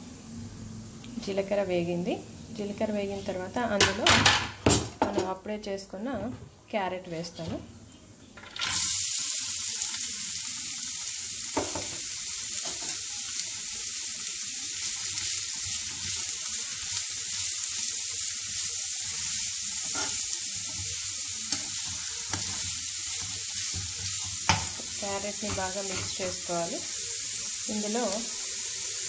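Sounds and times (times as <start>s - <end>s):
carrot sizzling in hot oil: 8.2s - 29.0s.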